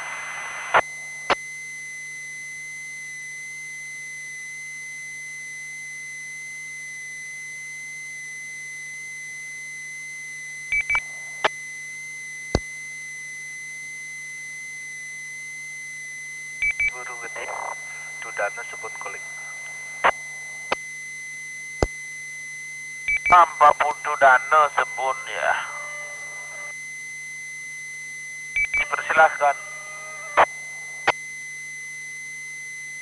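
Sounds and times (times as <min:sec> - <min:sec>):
faint hum: 0:00.0 - 0:33.0
high-pitched radio tone: 0:16.8 - 0:20.8, 0:23.2 - 0:26.7, 0:28.6 - 0:31.1.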